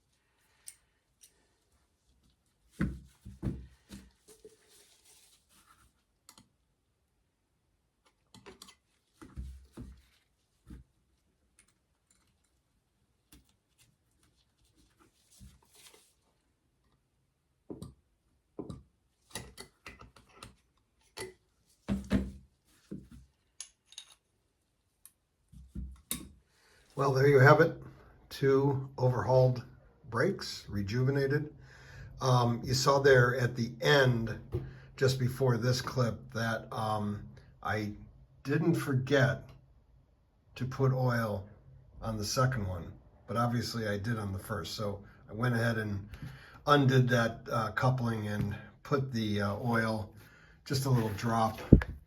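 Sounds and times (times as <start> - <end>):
metal parts clicking and knocking: 23.6 - 24.3.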